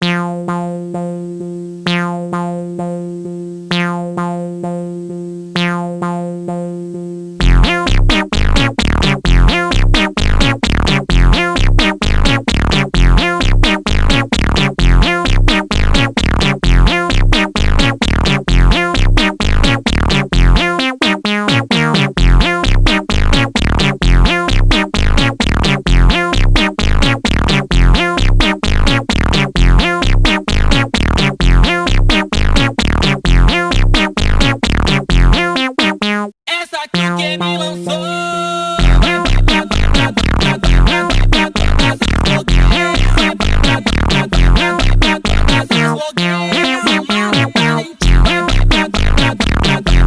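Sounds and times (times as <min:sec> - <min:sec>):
pulsing synthesizer chord: 0:00.0 - 0:36.2, 0:37.0 - 0:50.0
deep bass: 0:07.4 - 0:20.7, 0:21.5 - 0:35.4, 0:38.8 - 0:46.3, 0:47.0 - 0:50.0
fast sliding synth notes: 0:38.8 - 0:50.0.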